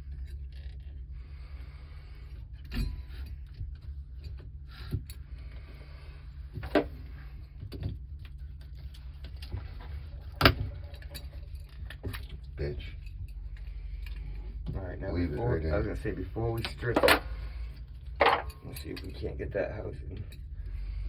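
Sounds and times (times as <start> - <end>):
steady low hum: 0.0 - 21.0
clicks and knocks of tools: 18.1 - 19.2.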